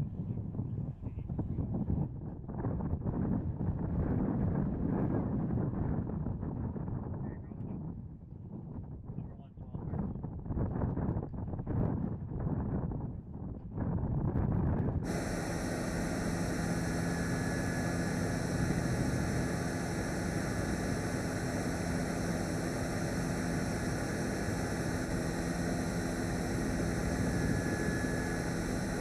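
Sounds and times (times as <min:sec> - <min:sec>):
aircraft engines running: 0:14.8 - 0:29.0
low hum: 0:15.0 - 0:29.0.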